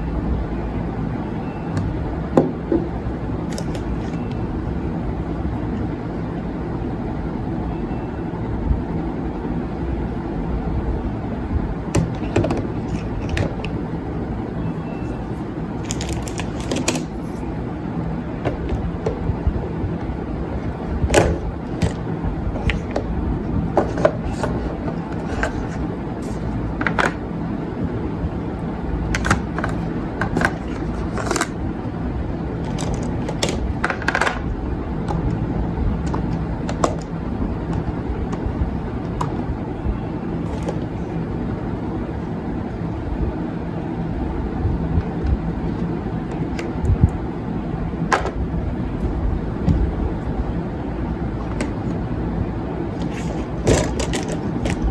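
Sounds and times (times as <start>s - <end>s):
steady low rumble: 8.5s - 54.9s
makeup items clicking and tapping: 15.2s - 17.2s, 21.1s - 23.1s, 23.7s - 27.2s, 29.1s - 31.6s, 32.6s - 35.4s, 53.0s - 54.9s.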